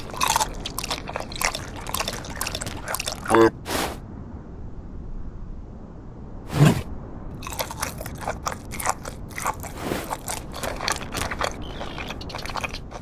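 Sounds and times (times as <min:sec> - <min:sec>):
cartoon crunching bites: 0:00.0 - 0:03.5, 0:07.4 - 0:13.0.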